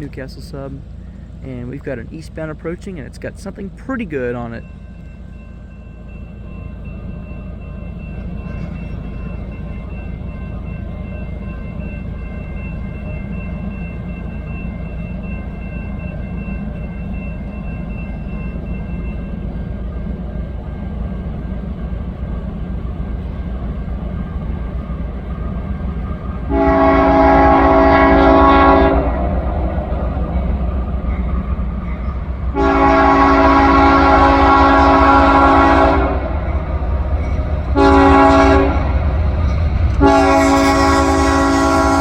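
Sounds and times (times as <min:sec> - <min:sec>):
train rumbling: 0:00.0 - 0:42.0
train air horn blast: 0:26.5 - 0:29.9, 0:32.5 - 0:36.4, 0:37.8 - 0:39.0, 0:40.0 - 0:42.0.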